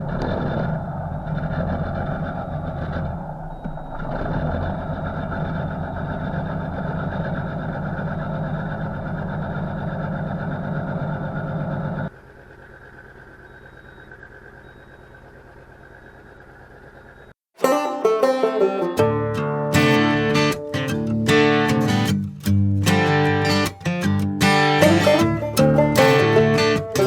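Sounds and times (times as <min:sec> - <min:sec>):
vehicle engine running: 0:00.0 - 0:17.4, 0:19.0 - 0:27.0.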